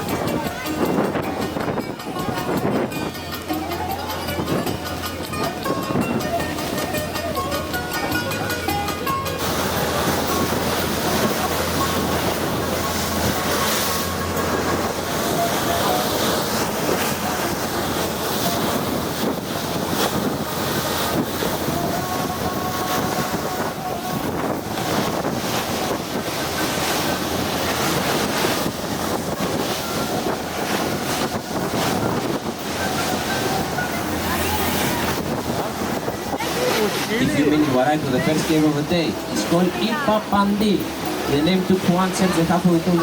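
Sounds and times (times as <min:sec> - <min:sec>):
boat engine drone: 0:00.0 - 0:43.0
water rushing against hull: 0:00.0 - 0:43.0
wind buffeting microphone: 0:00.0 - 0:43.0.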